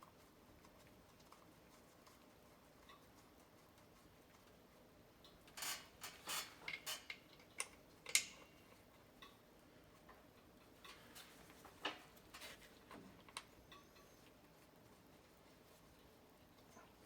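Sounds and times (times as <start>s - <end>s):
metallic clicks of hand tools: 5.6s - 8.5s.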